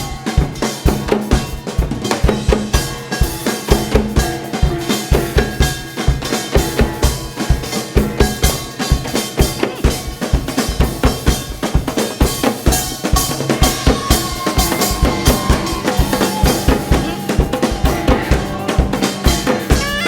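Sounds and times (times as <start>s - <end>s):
fast drum strikes: 0.0s - 20.0s
held melodic notes: 13.4s - 20.0s.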